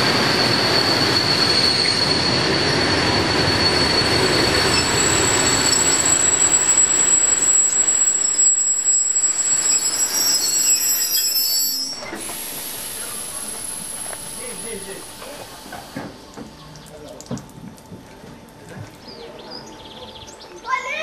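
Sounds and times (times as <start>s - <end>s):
high squeal of braking wheels: 0.0s - 15.2s
train wheels rolling on rails: 0.0s - 16.7s.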